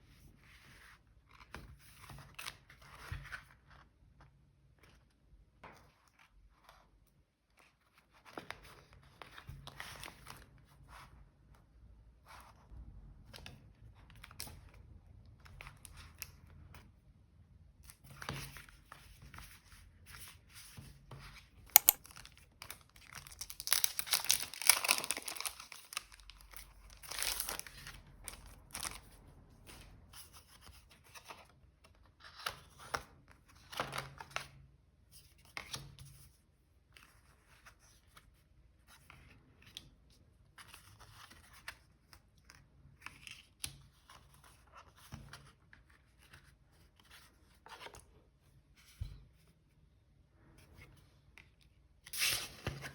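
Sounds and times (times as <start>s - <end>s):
paper rustling: 21.1s - 29.1s.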